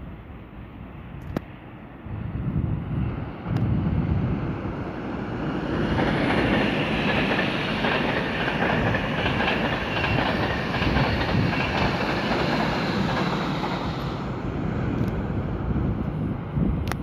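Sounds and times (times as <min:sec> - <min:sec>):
steel wheels rumbling on rail: 0:02.0 - 0:17.0
wheels clattering over rail joints: 0:05.7 - 0:14.1.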